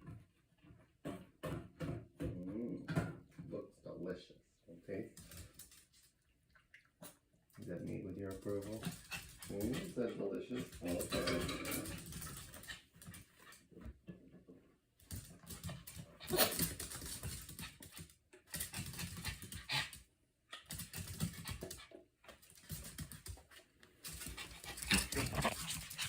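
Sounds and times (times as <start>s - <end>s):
pet eating wet food: 5.1s - 9.8s, 20.6s - 26.0s.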